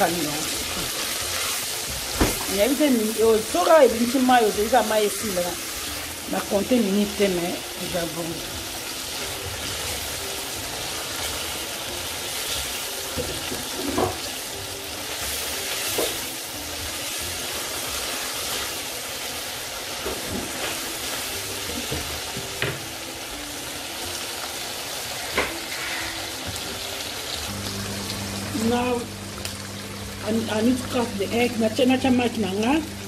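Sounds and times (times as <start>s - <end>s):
food sizzling in a frying pan: 0.0s - 33.0s.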